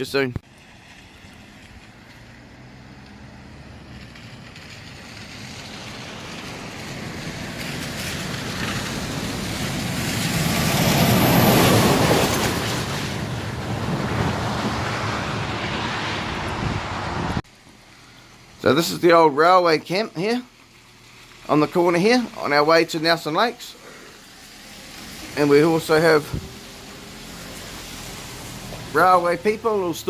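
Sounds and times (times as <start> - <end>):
road noise: 0.0 - 30.0
vehicle engine: 0.0 - 30.0
wind noise: 5.3 - 17.4, 26.2 - 26.6.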